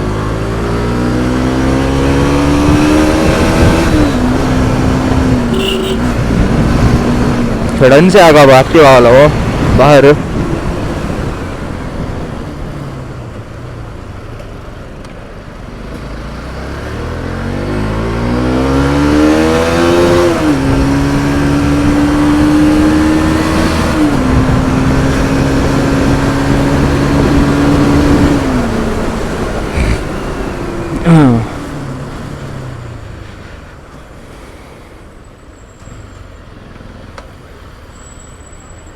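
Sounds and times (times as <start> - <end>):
motorcycle engine accelerating: 0.0 - 7.7, 16.0 - 33.2
road and wind noise: 0.0 - 38.9.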